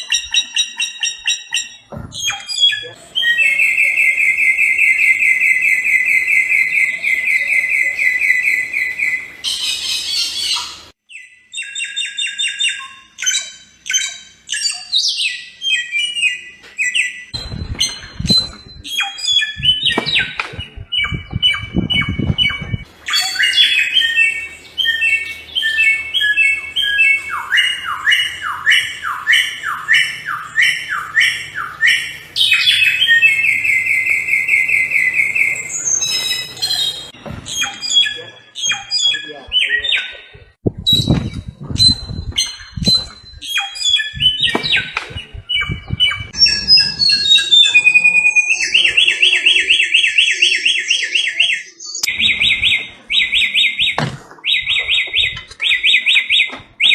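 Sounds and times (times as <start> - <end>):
songbird singing: 0.0 - 56.9
low thumps: 17.4 - 22.9, 40.4 - 43.4, 44.1 - 47.8.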